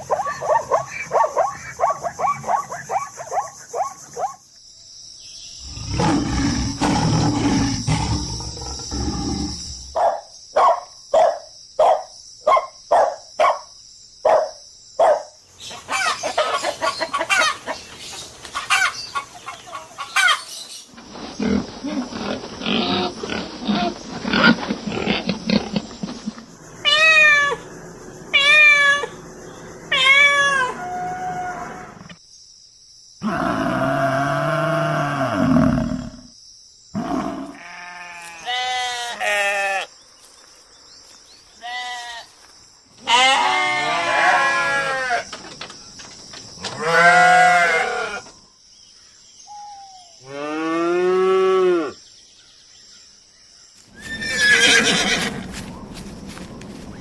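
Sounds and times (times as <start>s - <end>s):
animal calls: 21.4s - 32.2s.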